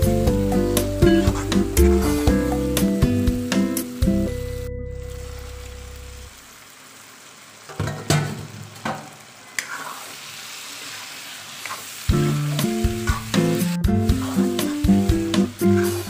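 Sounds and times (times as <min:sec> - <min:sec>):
background music: 0:00.0 - 0:06.1, 0:12.1 - 0:16.0
meat sizzling in hot oil: 0:00.0 - 0:16.0
metal spoon scraping a pan: 0:15.6 - 0:16.0.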